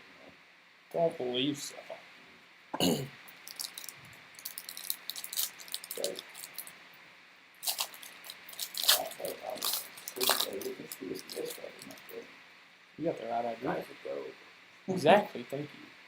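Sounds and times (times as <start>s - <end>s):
trading cards and wrapper crinkling: 3.3s - 6.7s, 7.6s - 12.2s.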